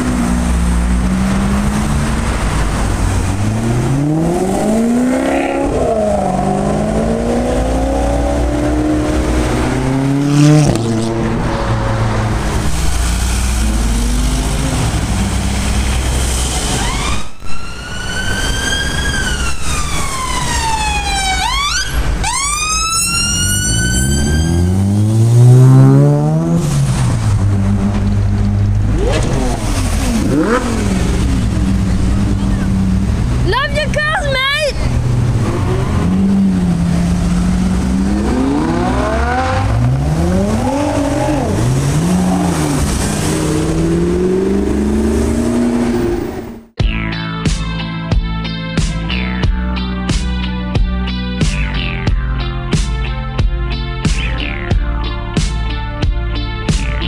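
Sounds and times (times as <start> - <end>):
car engines revving: 0.0 - 46.8
high wail: 20.8 - 24.8, 33.5 - 34.9.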